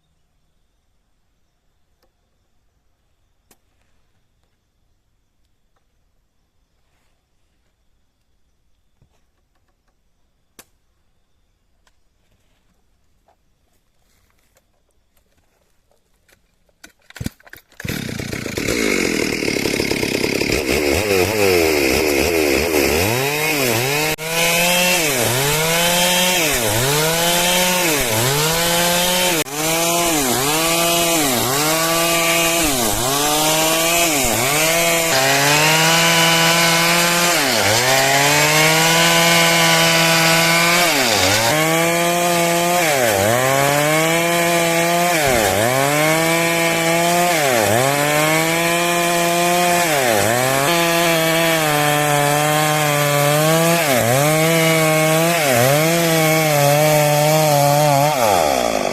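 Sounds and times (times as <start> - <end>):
chainsaw cutting wood: 16.3 - 58.9.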